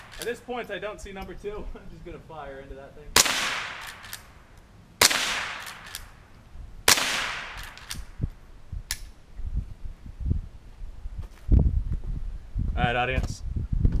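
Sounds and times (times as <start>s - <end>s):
rifle shots echoing: 0.0s - 0.3s, 3.2s - 4.4s, 5.0s - 8.2s
rifle action clicks: 3.3s - 6.1s, 7.2s - 8.1s.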